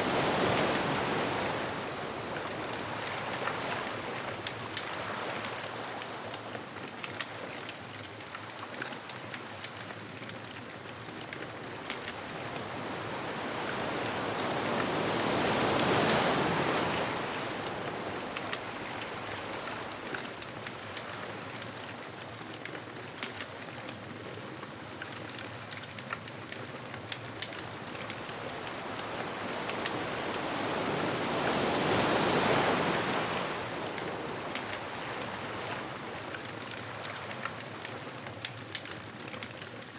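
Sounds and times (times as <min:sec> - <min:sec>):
ocean waves breaking: 0:00.0 - 0:06.3, 0:11.8 - 0:21.4, 0:27.3 - 0:37.8
steady wash of water: 0:00.0 - 0:06.8, 0:11.5 - 0:22.1, 0:27.2 - 0:38.5
bonfire crackling: 0:00.2 - 0:39.9.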